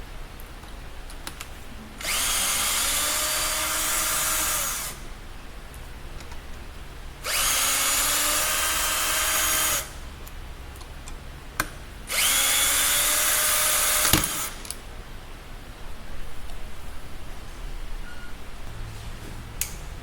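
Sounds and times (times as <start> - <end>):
electric power tool spinning: 2.0 - 5.0, 7.2 - 10.0, 12.1 - 14.7.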